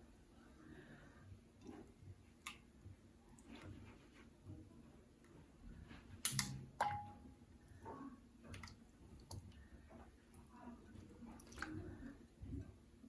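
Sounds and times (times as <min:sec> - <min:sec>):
hard dish struck with ringing tone: 0:06.8 - 0:07.3.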